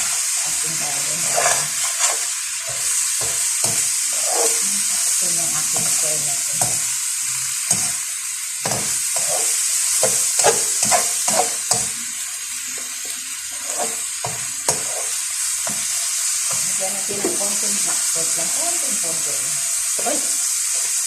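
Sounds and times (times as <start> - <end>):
utensil scraping a pan: 0.0 - 8.0, 8.7 - 12.0, 13.5 - 18.0
beans sizzling in a pan: 0.0 - 21.0.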